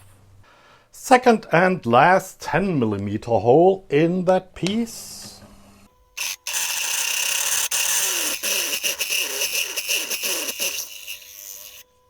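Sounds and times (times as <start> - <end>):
drill cutting metal: 6.2 - 12.0
drill squealing: 6.2 - 12.0.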